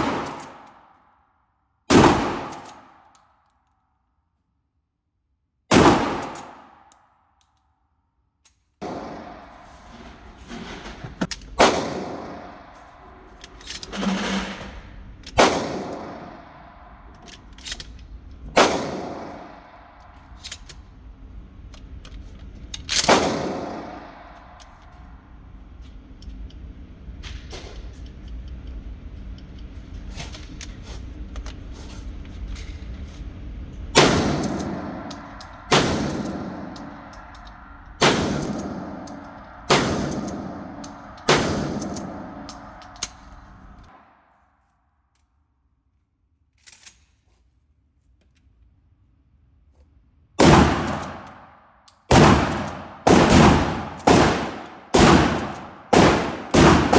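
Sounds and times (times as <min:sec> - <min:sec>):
shotgun shots with echo: 0:00.0 - 0:00.8, 0:01.9 - 0:03.0, 0:05.7 - 0:06.8, 0:08.8 - 0:09.5, 0:11.6 - 0:12.7, 0:15.4 - 0:16.5, 0:18.6 - 0:19.7, 0:23.1 - 0:24.3, 0:34.0 - 0:37.1, 0:38.0 - 0:42.7, 0:50.4 - 0:51.4, 0:52.1 - 0:56.9.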